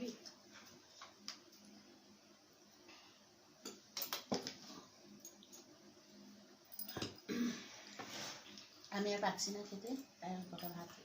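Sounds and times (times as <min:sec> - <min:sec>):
tableware clicks and knocks: 0:06.8 - 0:07.3.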